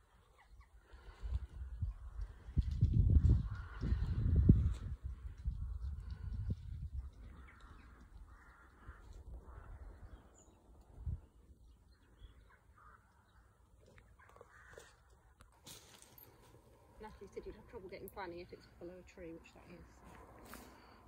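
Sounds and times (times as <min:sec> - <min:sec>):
harsh cawing bird calls: 0:03.3 - 0:04.4, 0:07.0 - 0:10.6, 0:12.0 - 0:15.3.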